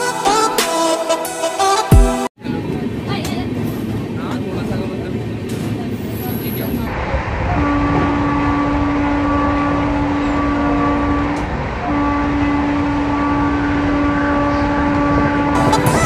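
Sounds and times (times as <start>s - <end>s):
train rumbling: 2.4s - 16.0s
train horn tone: 7.4s - 16.0s.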